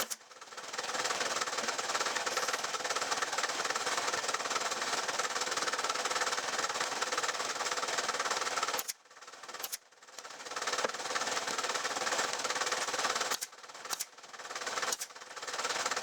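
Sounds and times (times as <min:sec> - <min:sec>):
power tool running roughly: 0:00.0 - 0:16.0.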